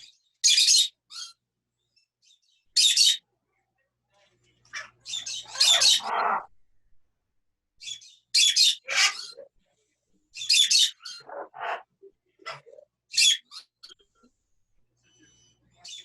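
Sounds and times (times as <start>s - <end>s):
parrots squawking: 0.0s - 1.4s, 2.8s - 3.2s, 4.7s - 6.5s, 7.8s - 9.5s, 10.4s - 14.0s.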